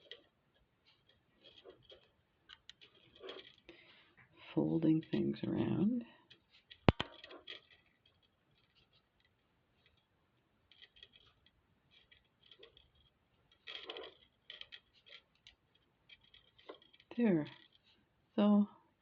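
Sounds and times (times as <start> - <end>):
wire and beads clicking: 0.0 - 4.2, 6.2 - 18.1.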